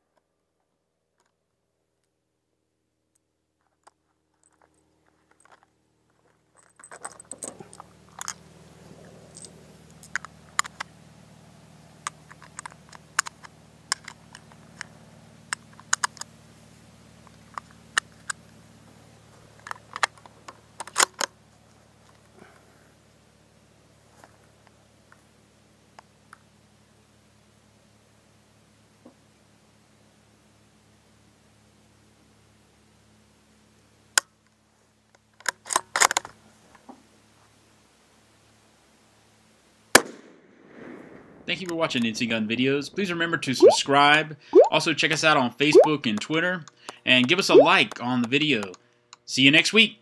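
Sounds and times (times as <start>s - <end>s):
sharp clicks from handling: 12.0s - 16.3s, 19.6s - 21.4s.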